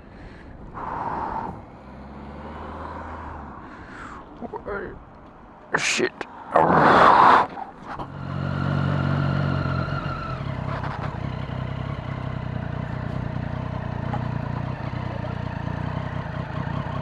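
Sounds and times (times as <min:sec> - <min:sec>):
motorcycle engine running: 0:08.0 - 0:17.0.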